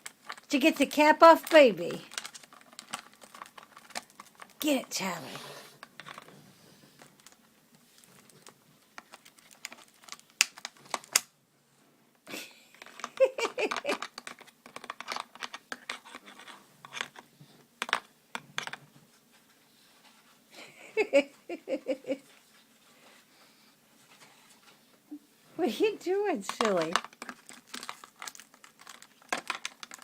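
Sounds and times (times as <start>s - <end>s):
plastic bottle clicking and crackling: 0.0s - 4.7s, 7.0s - 11.3s, 12.8s - 17.2s, 26.5s - 30.0s.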